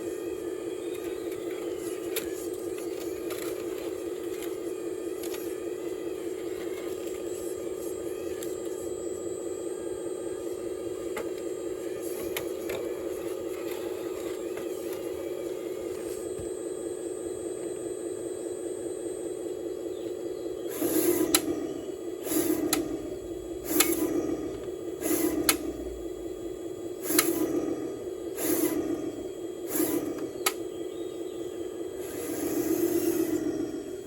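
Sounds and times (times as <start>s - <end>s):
toy excavator motor whining: 0.0s - 16.5s, 19.4s - 34.0s
sharp clicks: 29.7s - 30.7s.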